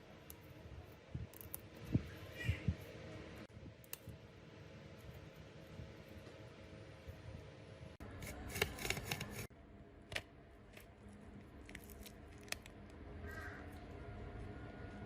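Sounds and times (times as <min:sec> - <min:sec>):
faint low hum: 0:09.5 - 0:15.0.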